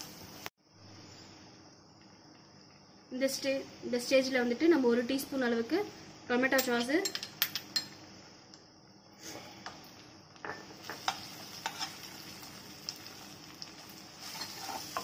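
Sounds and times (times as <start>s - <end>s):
food sizzling in oil: 0.0s - 0.5s, 9.2s - 15.0s.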